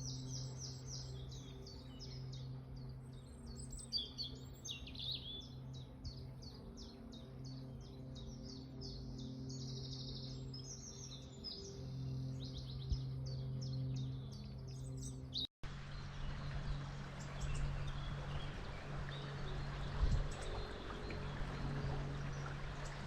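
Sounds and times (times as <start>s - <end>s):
songbirds chirping and trilling: 0.0s - 23.0s
river rushing: 15.7s - 23.0s
steady low hum: 15.7s - 23.0s.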